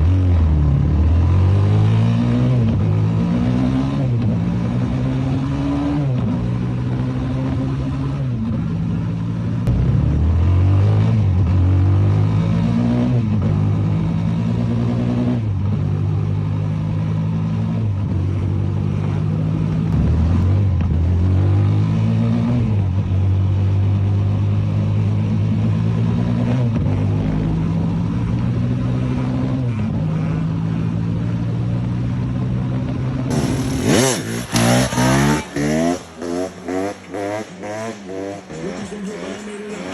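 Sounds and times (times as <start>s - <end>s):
motorbike engine revving: 33.3s - 39.9s.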